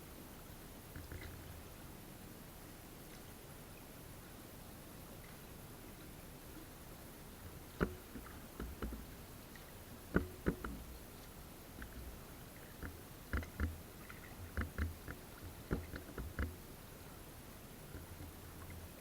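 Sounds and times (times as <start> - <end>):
knocks on a small boat: 7.8 - 9.1, 10.1 - 11.0, 12.8 - 13.8, 14.4 - 16.6.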